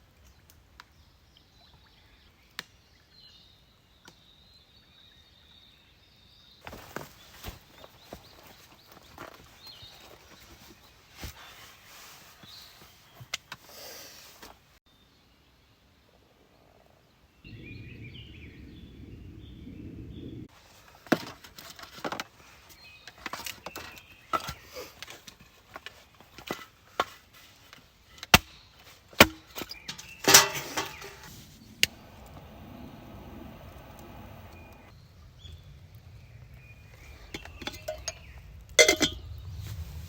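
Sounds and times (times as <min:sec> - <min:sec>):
low rumbling noise: 0:17.4 - 0:20.5, 0:30.4 - 0:40.0
objects knocking and clattering: 0:29.2 - 0:31.3, 0:37.3 - 0:39.3.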